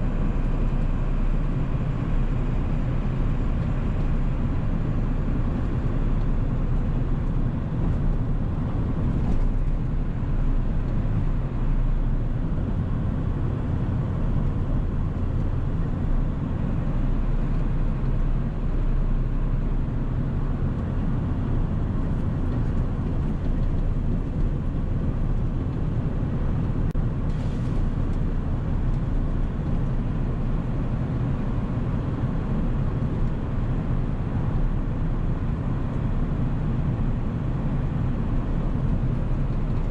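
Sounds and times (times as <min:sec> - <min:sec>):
diesel truck engine droning: 0:00.0 - 0:39.9
road noise: 0:00.0 - 0:39.9.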